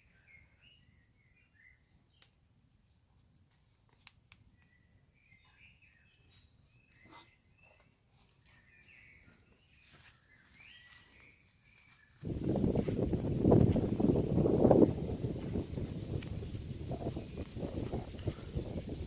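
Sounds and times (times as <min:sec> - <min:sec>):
faint bird chirps: 0:00.0 - 0:02.4, 0:04.5 - 0:13.3.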